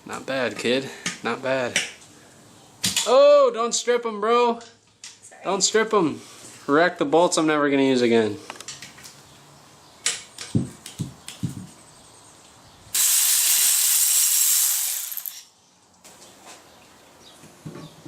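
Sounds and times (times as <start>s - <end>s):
loud hiss: 12.9s - 15.4s.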